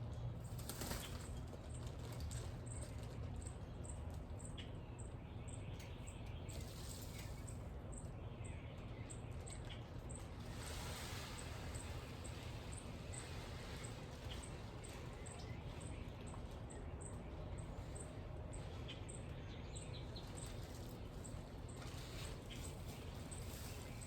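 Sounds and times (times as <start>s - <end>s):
low outdoor rumble: 0.0s - 24.0s.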